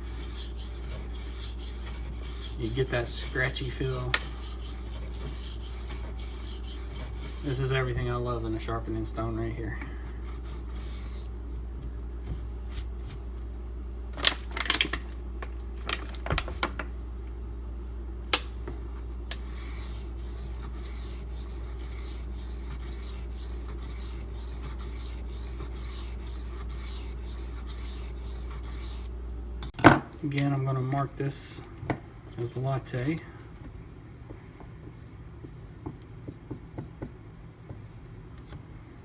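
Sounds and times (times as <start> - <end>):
knife scraping on whetstone: 0.0 - 7.7, 10.2 - 11.3, 19.3 - 29.1.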